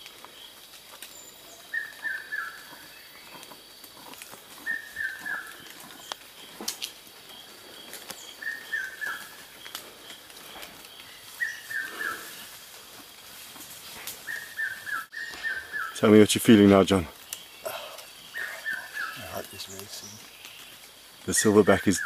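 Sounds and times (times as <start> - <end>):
bird singing descending notes: 14.2 - 16.4.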